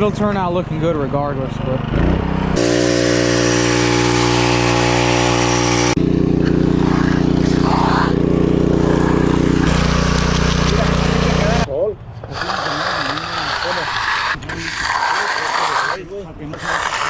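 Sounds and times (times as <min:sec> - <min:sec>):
engine running steadily: 0:00.0 - 0:11.7.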